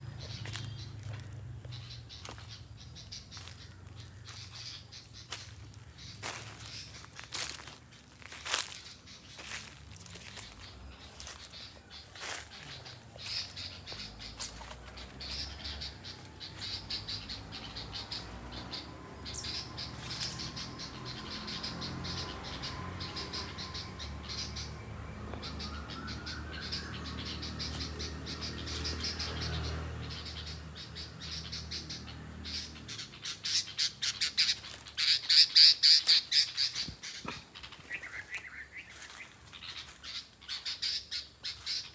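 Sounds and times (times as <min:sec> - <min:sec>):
bird chick squawking: 0:08.4 - 0:41.9.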